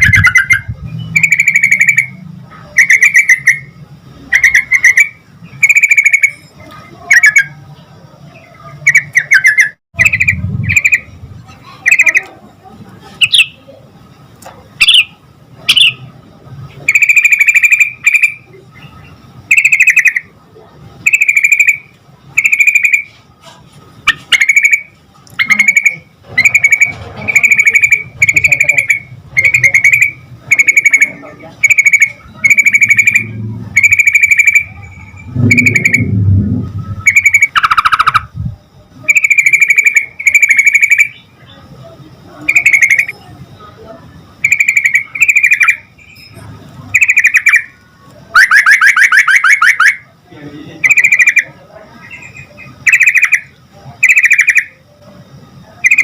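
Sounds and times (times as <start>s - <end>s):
bulbul singing bubbling phrases: 0.0s - 12.6s, 24.4s - 41.8s, 42.4s - 43.6s.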